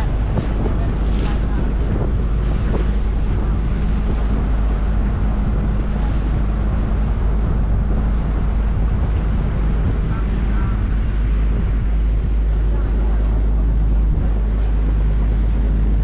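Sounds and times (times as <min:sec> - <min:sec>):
engine rumbling: 0:00.0 - 0:16.0
wind buffeting microphone: 0:00.0 - 0:16.0.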